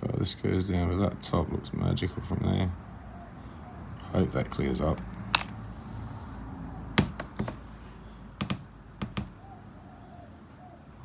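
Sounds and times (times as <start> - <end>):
stones clicking on hard surface: 5.0 - 5.6.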